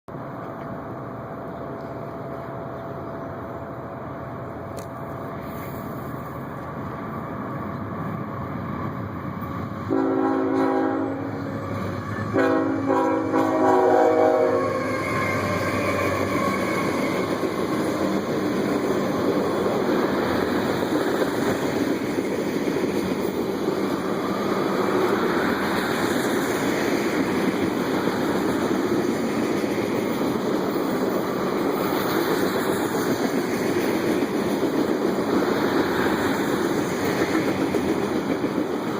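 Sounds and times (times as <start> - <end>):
train cars rolling past: 0.1 - 38.9
train horn blasts: 9.9 - 11.6, 12.2 - 17.0.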